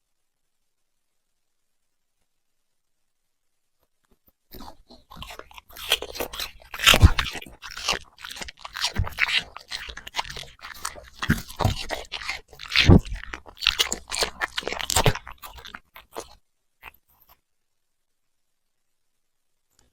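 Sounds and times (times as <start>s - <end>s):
puppy crunching food: 4.5s - 17.4s.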